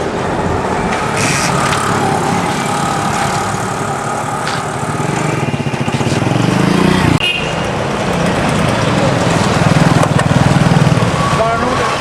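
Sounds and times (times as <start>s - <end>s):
motorcycle engine running: 1.0s - 7.2s.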